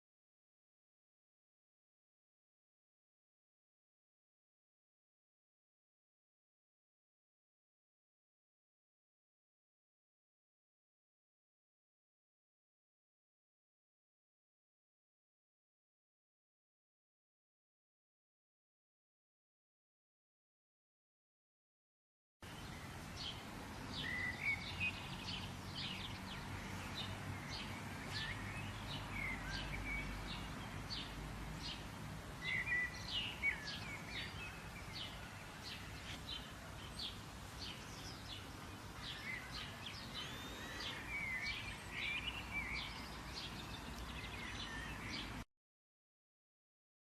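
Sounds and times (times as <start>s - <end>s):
outdoor background hiss: 22.4s - 45.5s
birds chirping and calling: 22.6s - 31.8s, 32.4s - 45.4s.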